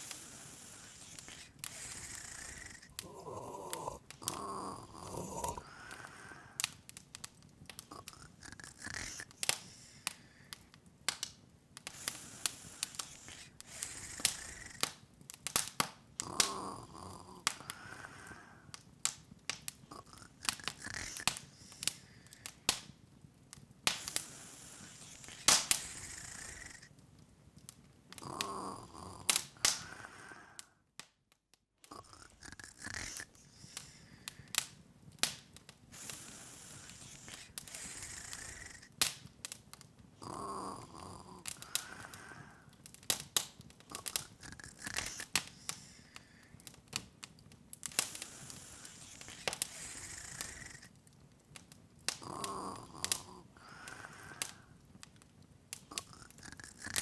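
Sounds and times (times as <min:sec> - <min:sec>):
soft snore: 0:00.0 - 0:06.7, 0:07.7 - 0:10.5, 0:11.8 - 0:15.0, 0:15.6 - 0:18.7, 0:19.9 - 0:22.5, 0:23.9 - 0:27.0, 0:28.1 - 0:30.7, 0:31.9 - 0:34.6, 0:36.0 - 0:39.1, 0:40.2 - 0:42.7, 0:43.9 - 0:46.5, 0:47.9 - 0:50.9, 0:52.1 - 0:54.7, 0:55.9 - 0:57.0
wood fire crackling and popping: 0:00.0 - 0:57.0.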